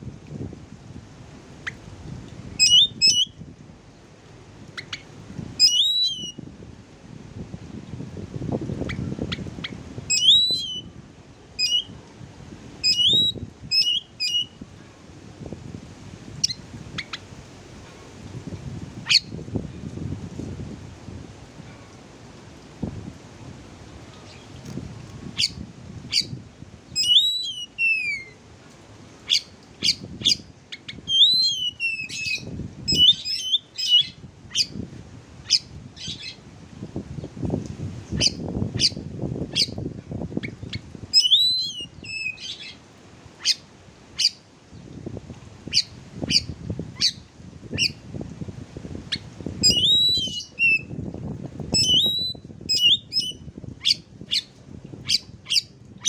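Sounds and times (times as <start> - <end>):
bird chipping and whistling: 2.6 - 3.3, 5.6 - 6.4, 10.1 - 10.9, 11.6 - 11.9, 12.8 - 14.5, 27.0 - 28.4, 29.3 - 34.7, 41.2 - 42.8, 49.6 - 50.9, 51.8 - 54.5.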